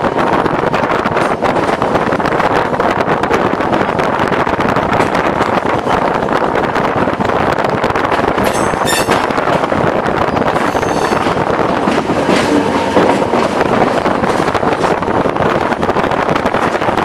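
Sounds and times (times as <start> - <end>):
train rumbling and rattling: 0.0 - 17.0
high screech: 10.6 - 11.4.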